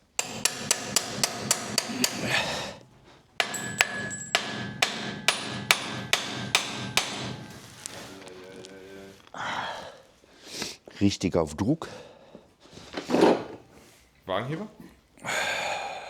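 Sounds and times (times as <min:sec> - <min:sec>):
hammer striking metal: 0:00.1 - 0:07.9.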